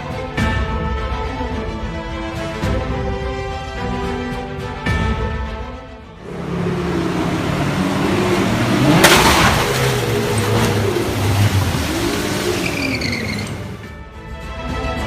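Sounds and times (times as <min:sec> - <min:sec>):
car engine revving: 0:06.2 - 0:13.9
loud crash-like bang: 0:08.8 - 0:10.8.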